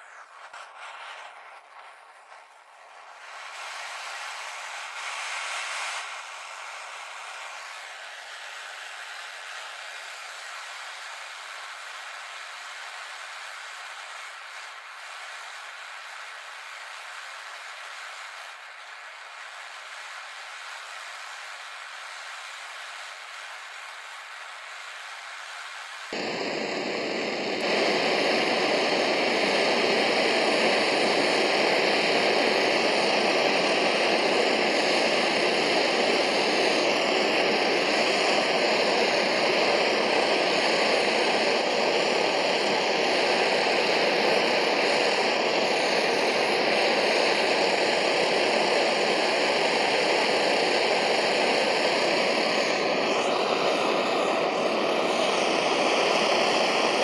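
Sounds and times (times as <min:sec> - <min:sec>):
soldering iron burner rushing: 0:00.0 - 0:08.8, 0:26.1 - 0:57.0.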